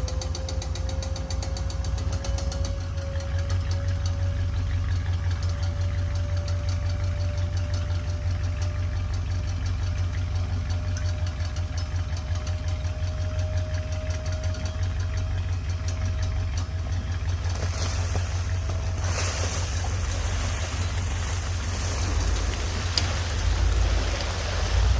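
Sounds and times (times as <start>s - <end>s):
engine idling: 0.0s - 24.9s
faint steady whine: 16.8s - 24.9s.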